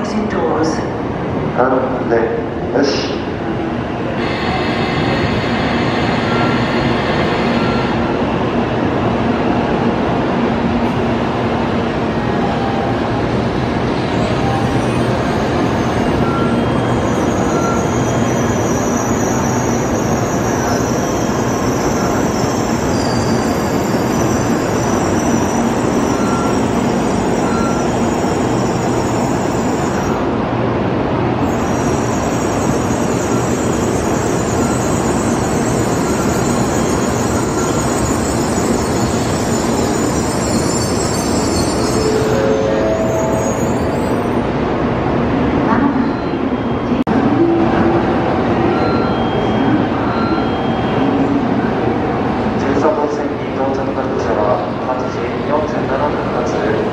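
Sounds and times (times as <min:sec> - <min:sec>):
high-pitched squeal: 0:14.1 - 0:30.3, 0:31.4 - 0:44.5.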